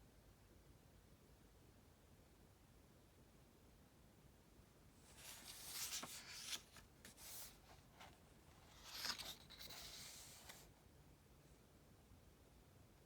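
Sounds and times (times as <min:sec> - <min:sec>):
book pages rustling: 0:05.0 - 0:10.7.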